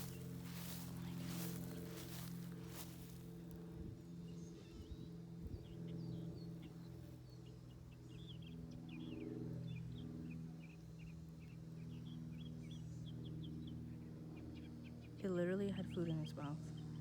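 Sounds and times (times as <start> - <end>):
steady low hum: 0.0 - 8.8
small birds chirping: 0.0 - 15.2.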